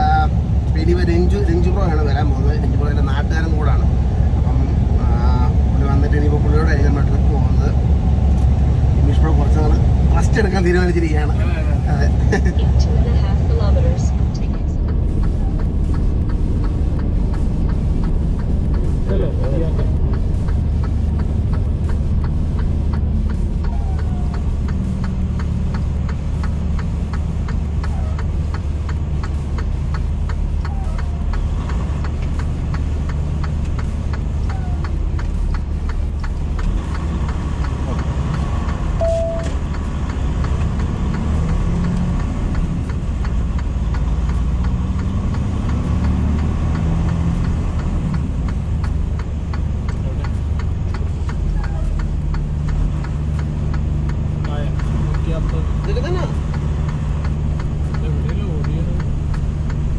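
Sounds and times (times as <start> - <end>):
faint repeated ticking: 0.0 - 59.9
truck engine and road drone: 0.0 - 59.9.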